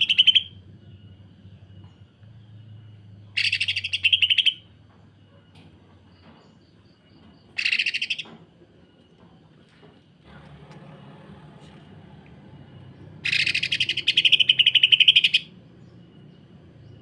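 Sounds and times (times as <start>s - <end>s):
bird rattling calls: 3.4s - 4.6s, 7.6s - 8.3s, 13.2s - 15.5s.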